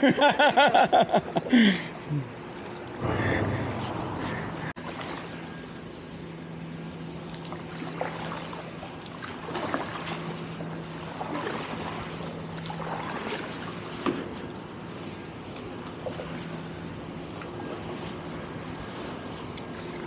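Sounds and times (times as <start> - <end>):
low hum: 0.0 - 20.0
paddles pulling through water: 0.0 - 20.0
water splashes and drips: 4.7 - 6.3, 7.1 - 20.0.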